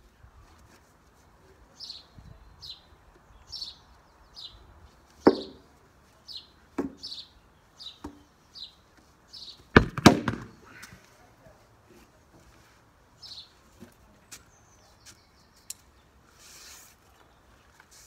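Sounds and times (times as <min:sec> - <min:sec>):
bird chirping: 0:01.8 - 0:04.7, 0:06.2 - 0:09.7
sharp knocks: 0:05.2 - 0:05.6.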